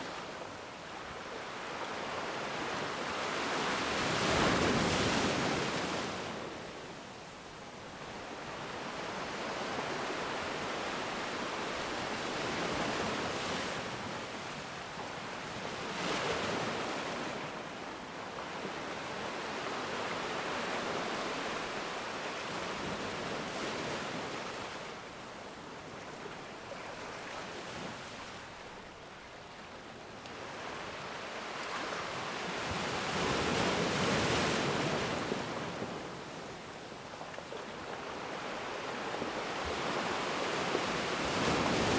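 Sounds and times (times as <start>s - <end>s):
ocean waves breaking: 37.4s - 41.9s.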